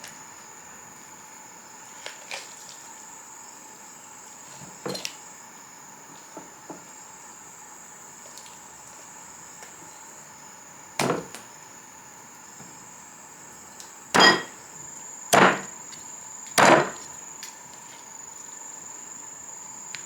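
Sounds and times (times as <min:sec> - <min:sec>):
sharp knocks on wood: 0:11.0 - 0:11.4, 0:14.2 - 0:14.5, 0:15.4 - 0:15.7, 0:16.6 - 0:17.1.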